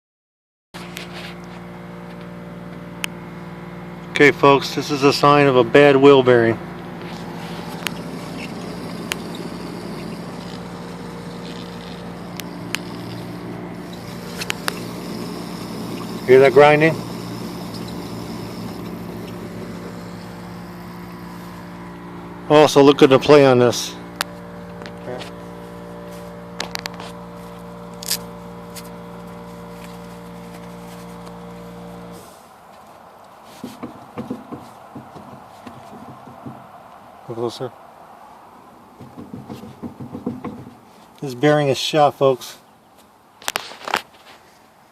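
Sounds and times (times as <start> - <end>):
vehicle hum: 4.8 - 37.2
wheel bearing grinding: 7.0 - 22.0.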